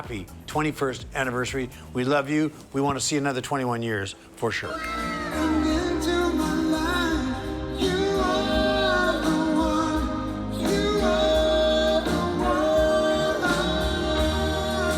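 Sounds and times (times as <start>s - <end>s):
ballad with singer: 4.6s - 14.9s
instrumental accompaniment: 4.8s - 14.9s.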